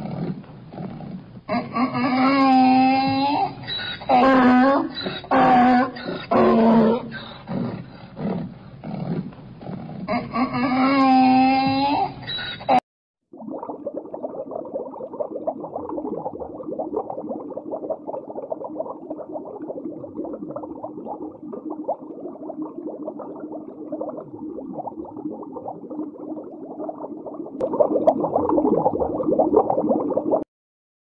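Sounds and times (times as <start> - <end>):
aquarium water bubbling: 0.0 - 30.5.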